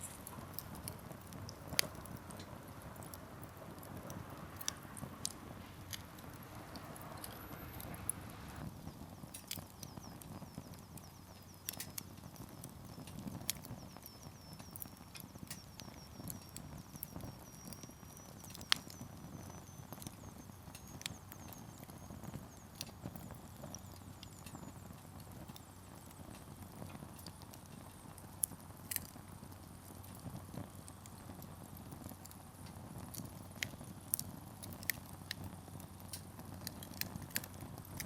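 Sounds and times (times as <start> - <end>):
campfire flames rushing: 0.0 - 38.0
firewood crackling and popping: 0.0 - 38.0.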